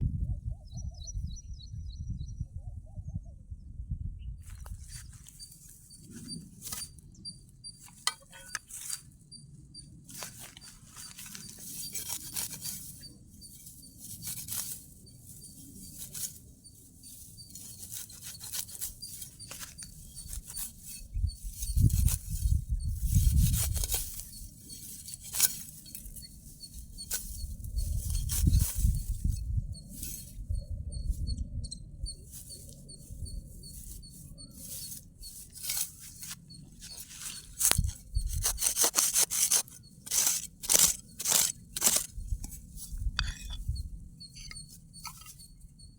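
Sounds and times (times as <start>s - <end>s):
faint high chirping: 0.2s - 45.9s
rustling and crackling: 10.1s - 30.5s, 32.2s - 45.6s.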